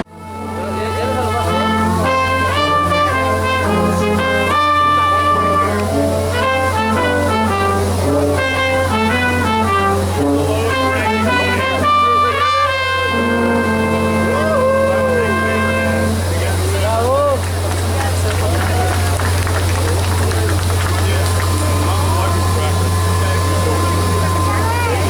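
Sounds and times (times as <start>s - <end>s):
brass instruments playing chords: 0.0s - 25.0s
steady low hum: 19.0s - 25.0s.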